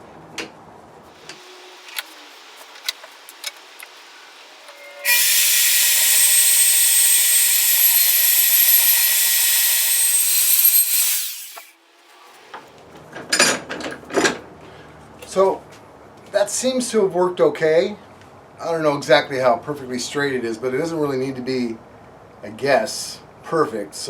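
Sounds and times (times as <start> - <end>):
band saw cutting metal: 4.1 - 11.8.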